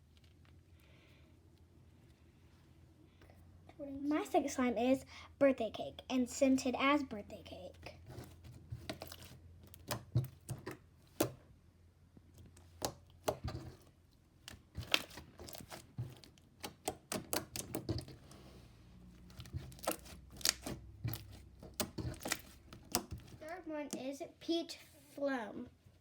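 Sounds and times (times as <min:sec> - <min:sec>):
slime squished by hand: 0:14.4 - 0:18.1, 0:19.2 - 0:23.4.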